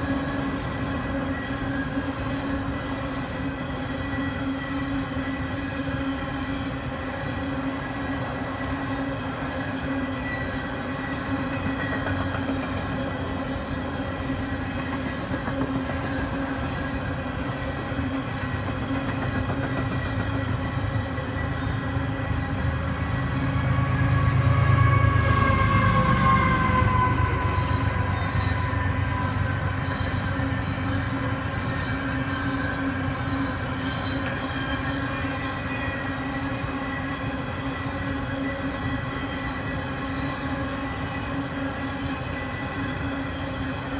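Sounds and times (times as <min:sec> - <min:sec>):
freight train wheels rumbling: 0:05.0 - 0:43.9
high whining tones: 0:21.4 - 0:34.5.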